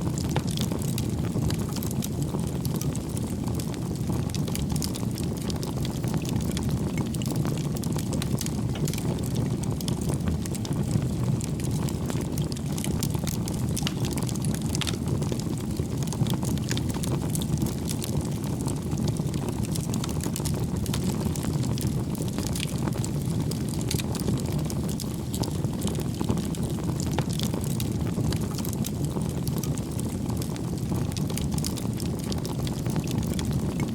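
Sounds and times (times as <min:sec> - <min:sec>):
fire flames rumbling: 0:00.0 - 0:33.9
firewood crackling and popping: 0:00.0 - 0:33.9.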